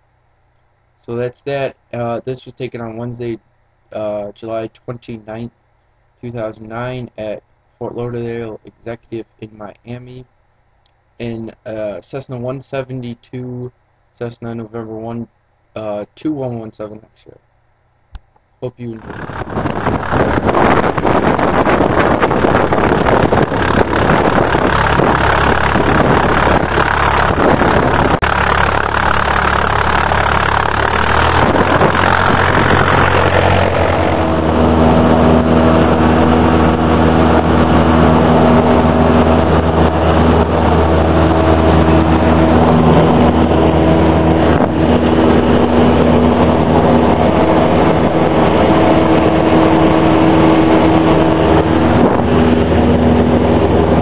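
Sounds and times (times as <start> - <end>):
airplane engine and propeller roar: 18.8 - 54.0.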